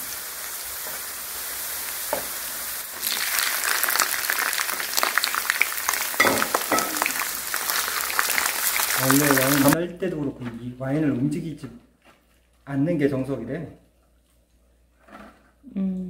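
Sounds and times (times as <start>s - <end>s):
shrimp sizzling in oil: 0.0s - 9.8s.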